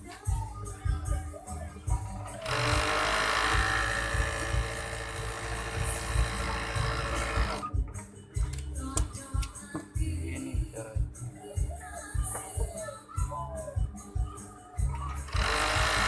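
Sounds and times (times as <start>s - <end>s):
sewing machine running: 2.4s - 7.7s, 15.3s - 16.0s.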